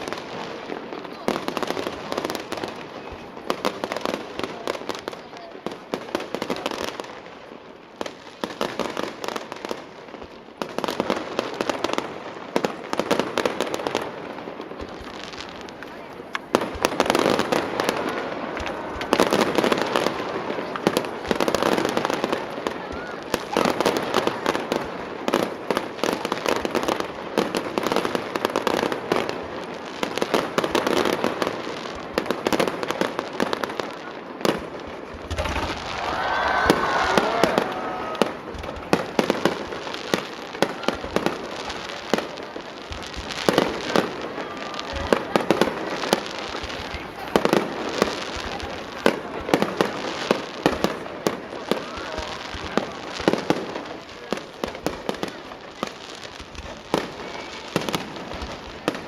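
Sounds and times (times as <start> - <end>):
fireworks bangs and crackling: 0.0 - 59.0
deep firework thumps: 38.2 - 39.8, 42.8 - 43.7.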